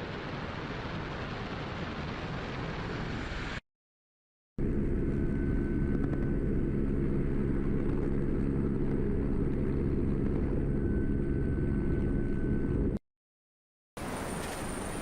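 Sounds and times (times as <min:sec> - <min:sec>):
helicopter engine and rotor: 0:04.6 - 0:13.0.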